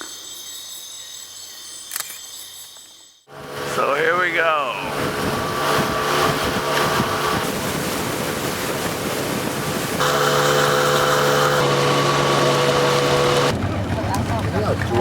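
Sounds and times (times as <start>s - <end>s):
engine running: 3.3s - 15.0s.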